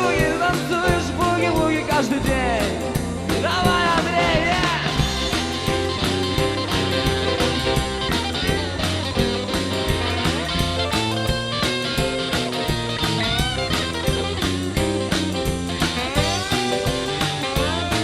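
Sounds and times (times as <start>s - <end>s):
bass: 0.0s - 18.0s
drum beat: 0.0s - 18.0s
guitar solo with bending notes: 3.9s - 18.0s.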